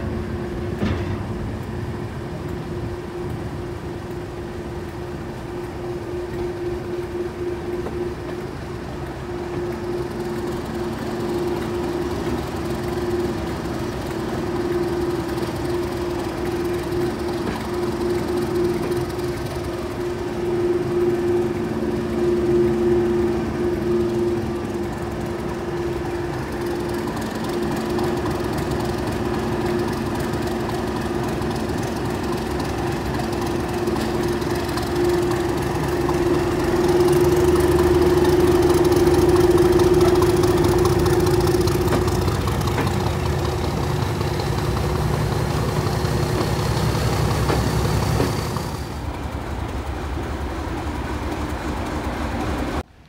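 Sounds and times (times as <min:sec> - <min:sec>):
faint rising whine: 0:00.0 - 0:53.0
rail noise: 0:00.0 - 0:53.0
train engine hum: 0:00.0 - 0:53.0.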